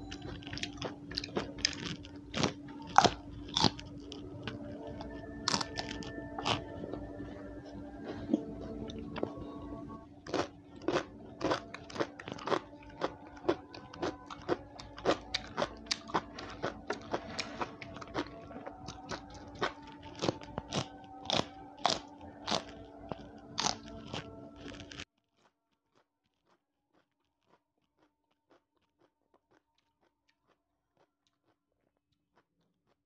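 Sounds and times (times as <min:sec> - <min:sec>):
mouth crunching raw bean: 0:00.3 - 0:06.7.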